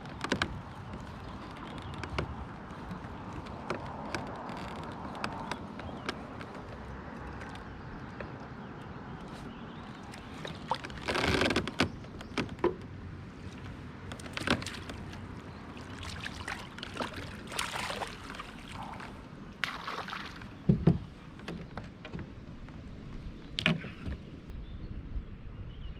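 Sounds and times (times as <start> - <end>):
water splashing around kayak: 0.0 - 24.0
knocks against kayak hull: 20.6 - 22.2.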